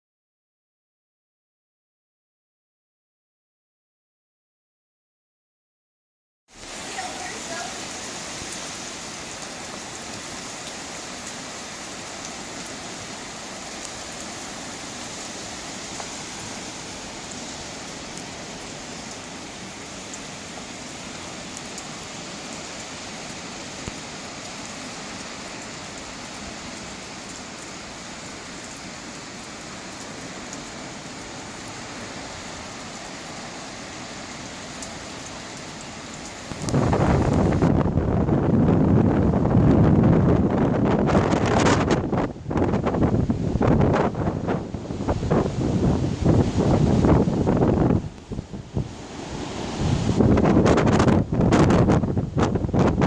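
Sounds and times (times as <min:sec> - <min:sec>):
wind: 0:06.5 - 0:53.0.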